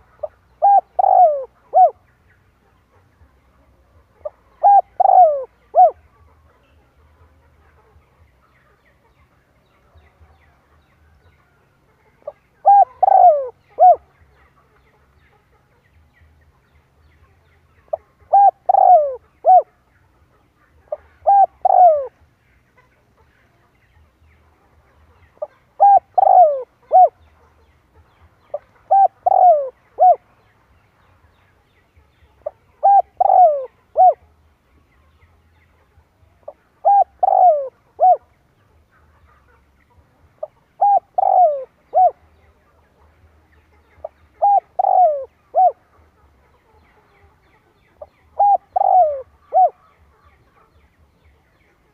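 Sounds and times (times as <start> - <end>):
dove cooing: 0.0 - 2.1, 4.2 - 6.1, 12.2 - 14.1, 17.9 - 19.8, 20.9 - 22.2, 25.4 - 27.2, 28.5 - 30.2, 32.4 - 34.3, 36.4 - 38.3, 40.4 - 42.3, 44.0 - 46.0, 48.3 - 50.0.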